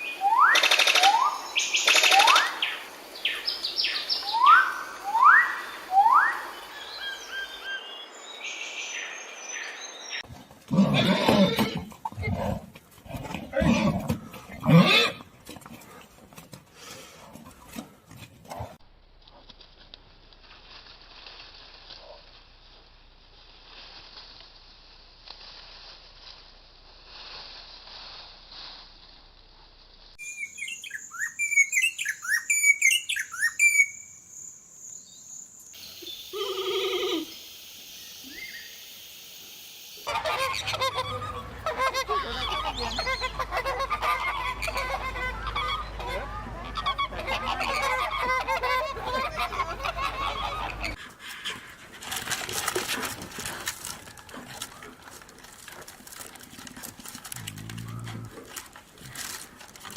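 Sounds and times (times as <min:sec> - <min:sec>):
bird honking call: 0:40.1 - 0:51.0
chorus of birds calling: 0:40.1 - 0:51.0.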